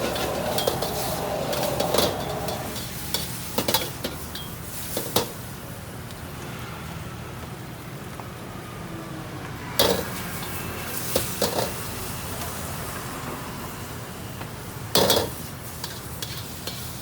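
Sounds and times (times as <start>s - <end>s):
food sizzling: 0.0s - 5.1s.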